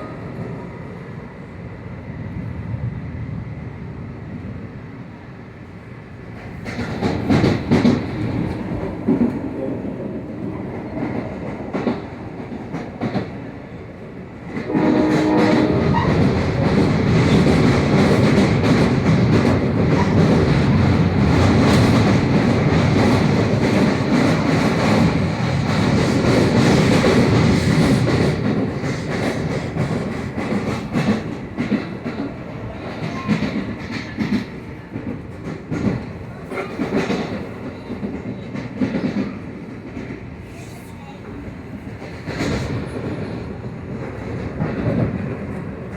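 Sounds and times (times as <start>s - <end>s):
train wheels clattering: 6.4s - 13.4s, 14.5s - 40.4s, 41.9s - 45.9s.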